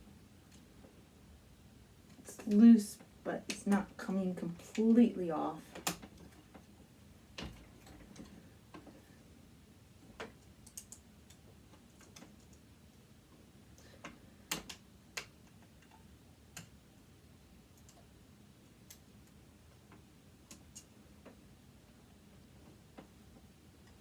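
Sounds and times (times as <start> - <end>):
faint clicks of metal parts: 0.4 - 1.0, 5.6 - 9.4, 10.0 - 16.8, 17.7 - 24.0.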